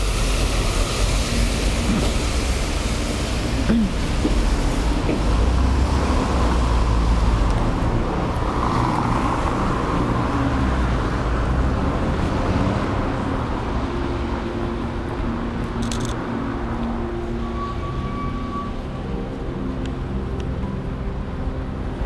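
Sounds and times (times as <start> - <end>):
tyre hiss: 0.0 - 5.6
vehicles rumbling past: 0.0 - 22.0.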